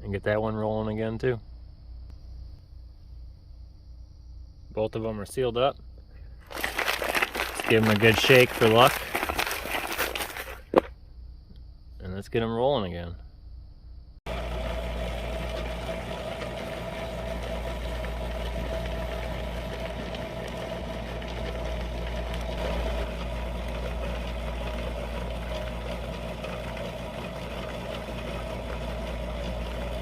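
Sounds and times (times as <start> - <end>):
motor hum: 6.4 - 10.9, 14.3 - 30.0
rocks churning in barrels: 6.4 - 10.9, 14.3 - 30.0.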